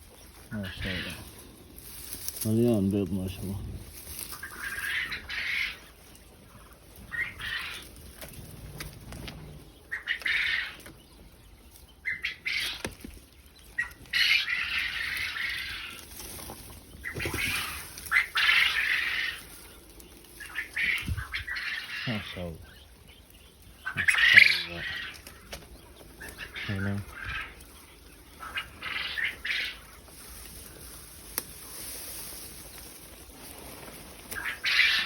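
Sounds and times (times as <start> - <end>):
quail wings flapping and rustling: 0.0 - 11.1, 11.7 - 35.0.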